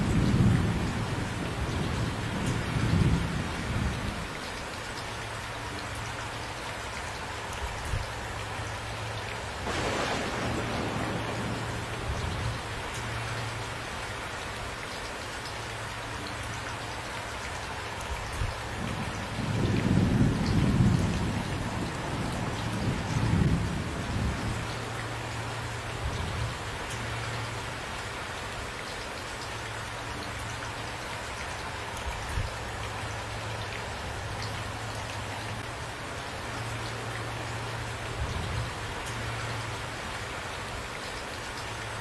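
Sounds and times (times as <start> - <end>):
steady rain: 0.0 - 42.0
thunder rumbling: 9.6 - 13.3, 18.8 - 24.7.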